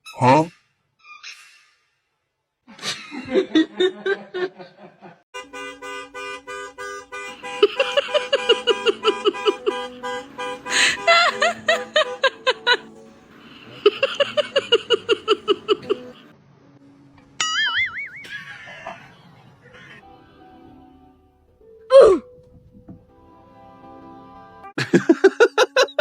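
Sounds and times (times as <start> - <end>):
playful bouncy music: 6.7 - 16.3, 17.2 - 19.0, 20.0 - 26.0
laugh-like bursts: 7.3 - 12.9, 13.5 - 16.3, 18.2 - 20.0, 24.8 - 26.0.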